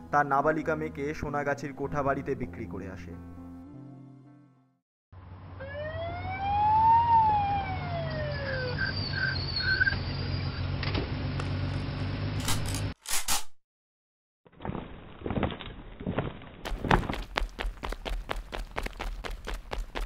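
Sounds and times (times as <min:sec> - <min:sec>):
siren wailing: 0:05.6 - 0:10.6.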